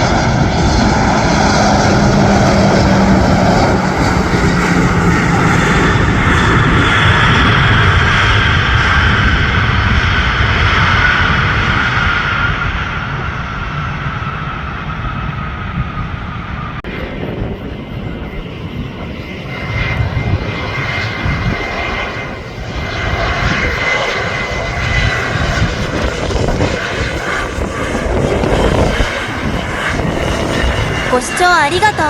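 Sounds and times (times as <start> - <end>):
jet engine whine: 0.0 - 32.0
jet engines low rumble: 0.0 - 32.0.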